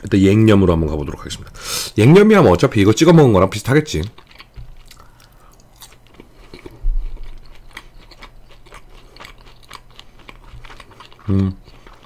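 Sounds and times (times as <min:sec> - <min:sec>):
chewing crunchy fried chicken: 0:03.8 - 0:12.0.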